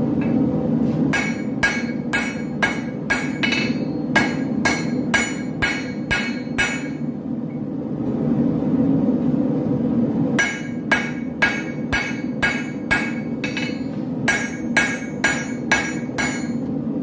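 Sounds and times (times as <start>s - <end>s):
steady low hum: 0.0s - 17.0s
hammer ringing on anvil: 1.1s - 7.1s, 10.4s - 16.7s.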